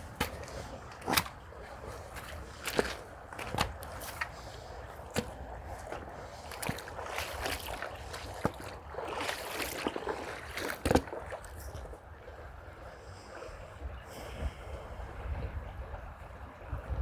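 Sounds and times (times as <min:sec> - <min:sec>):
footsteps crunching on path: 0:00.0 - 0:11.5.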